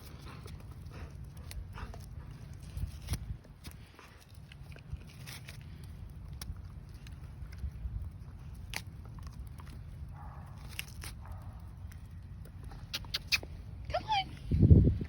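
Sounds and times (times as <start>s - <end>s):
dog chewing wooden stick: 0.0s - 13.8s
wind rumble on microphone: 13.8s - 15.0s.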